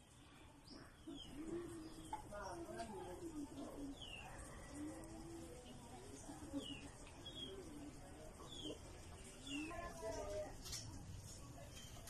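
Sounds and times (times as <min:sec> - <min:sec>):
bird cooing: 0:01.0 - 0:08.8.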